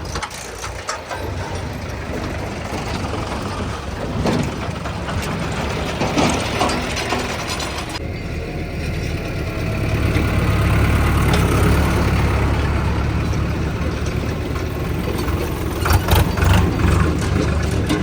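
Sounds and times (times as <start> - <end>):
sharp clattering knocks: 0.0 - 8.0
tractor diesel engine running: 0.0 - 18.0.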